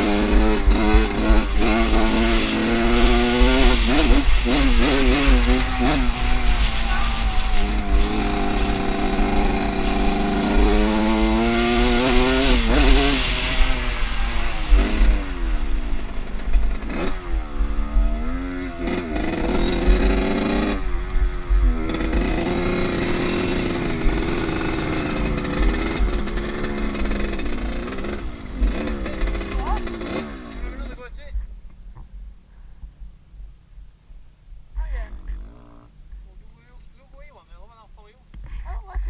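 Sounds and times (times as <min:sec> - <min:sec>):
off-road motorcycle engine revving: 0:00.0 - 0:31.2, 0:34.8 - 0:36.1.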